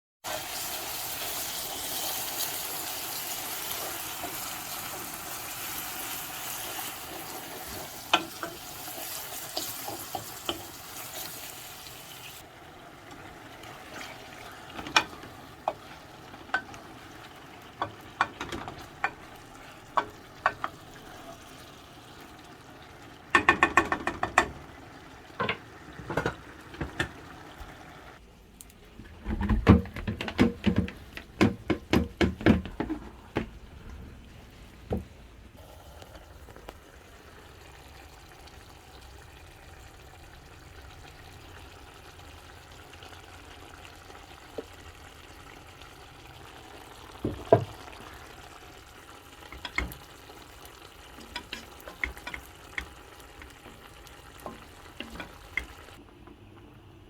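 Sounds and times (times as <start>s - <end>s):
steady cooking hiss: 0.2s - 28.3s, 30.6s - 57.0s
utensil knocking against cookware: 23.3s - 24.6s, 29.7s - 33.0s.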